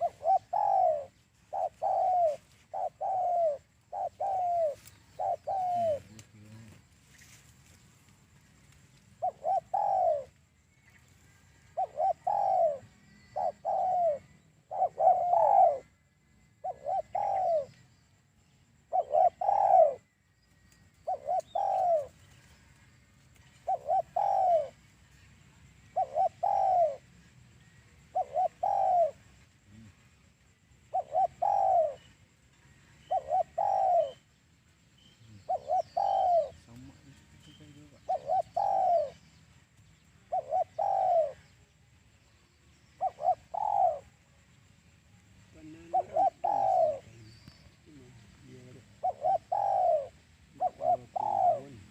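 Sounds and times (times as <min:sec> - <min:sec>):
dove cooing: 0:00.0 - 0:06.8, 0:09.2 - 0:10.4, 0:11.3 - 0:17.9, 0:18.7 - 0:20.2, 0:20.9 - 0:22.8, 0:23.5 - 0:24.9, 0:25.7 - 0:30.0, 0:30.8 - 0:34.3, 0:35.2 - 0:39.4, 0:40.1 - 0:41.7, 0:42.7 - 0:44.3, 0:45.5 - 0:51.9.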